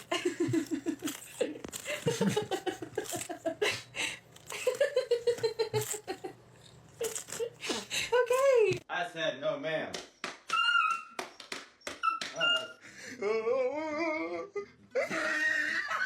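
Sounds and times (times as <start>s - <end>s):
person laughing in rapid bursts: 0.0s - 6.4s, 15.0s - 16.0s.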